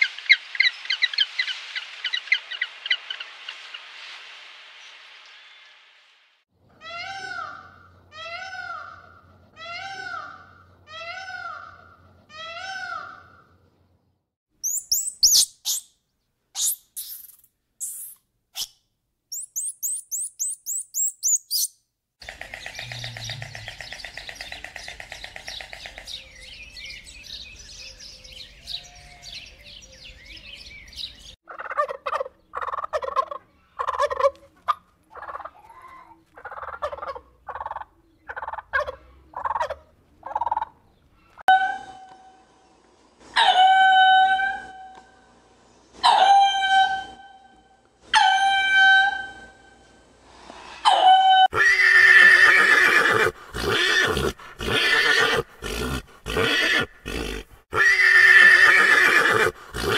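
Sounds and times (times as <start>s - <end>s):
short repeated bird calls: 14.6s - 15.9s, 16.6s - 26.7s
high rapid bird chirping: 14.6s - 16.0s, 16.6s - 28.1s.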